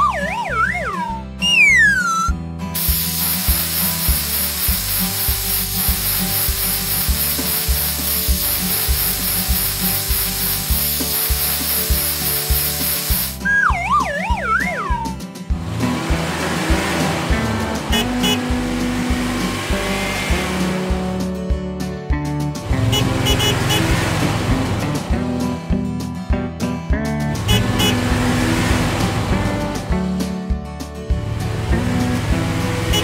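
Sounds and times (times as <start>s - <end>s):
falling whistle glides: 0.0s - 2.3s, 13.4s - 15.2s
background music loop: 0.0s - 33.0s
hissing rubbing tool noise: 2.8s - 13.4s.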